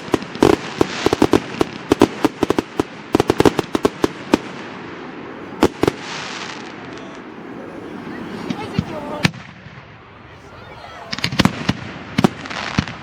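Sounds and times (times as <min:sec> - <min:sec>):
crackling hiss of bursting shells: 0:00.0 - 0:04.9
fireworks bangs: 0:00.0 - 0:13.0.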